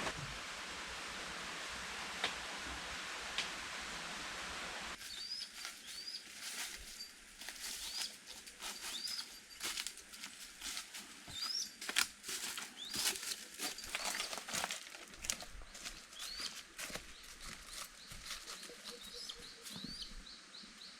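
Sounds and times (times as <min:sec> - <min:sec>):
steady hiss: 0:00.0 - 0:11.2
rustling and crackling leaves: 0:00.0 - 0:20.2
forest bird chirping: 0:04.9 - 0:10.0, 0:11.2 - 0:14.5, 0:15.4 - 0:20.9.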